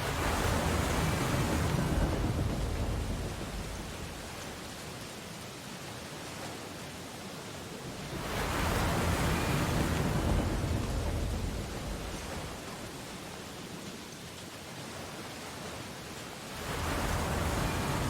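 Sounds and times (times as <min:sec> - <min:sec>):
wave breaking on beach: 0:00.0 - 0:04.8, 0:08.0 - 0:13.0, 0:16.5 - 0:18.0.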